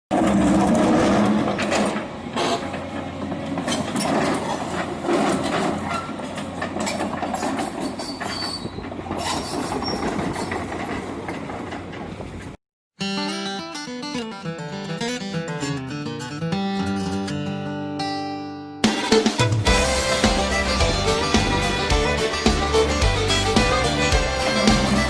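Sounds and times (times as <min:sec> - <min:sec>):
excavator engine running: 0:00.1 - 0:08.0, 0:19.4 - 0:25.0
metal clanks and squeals: 0:00.2 - 0:02.9, 0:03.6 - 0:11.0.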